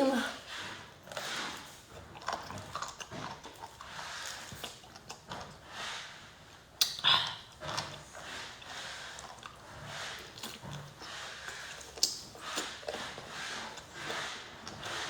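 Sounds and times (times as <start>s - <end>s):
person biting and chewing: 10.2s - 15.0s.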